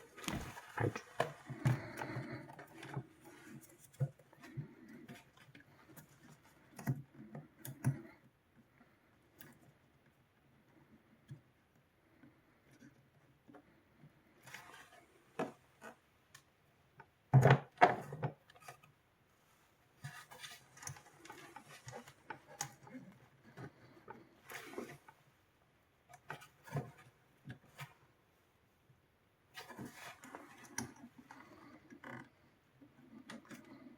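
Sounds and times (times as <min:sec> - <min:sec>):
hands handling parts and tools: 0:00.0 - 0:07.0.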